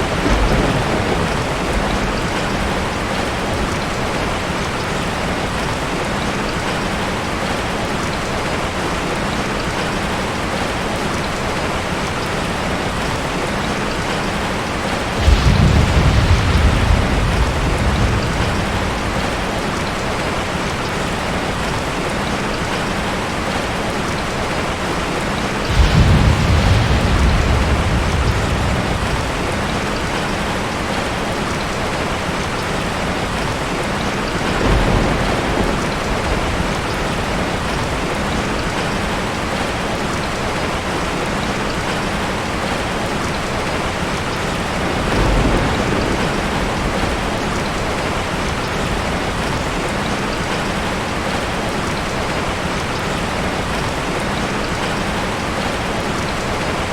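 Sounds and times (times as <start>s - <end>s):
thunder rumbling: 0.0s - 5.9s, 12.9s - 22.1s, 24.5s - 40.6s, 44.0s - 51.4s
steady rain falling: 0.0s - 56.9s.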